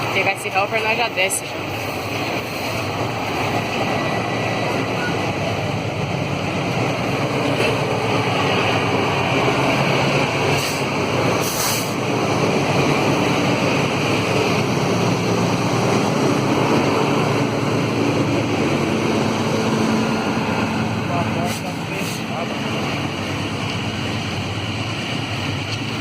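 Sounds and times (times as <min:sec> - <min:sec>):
train wheels rumbling on rails: 0:00.0 - 0:26.0
short high hisses: 0:11.4 - 0:12.0.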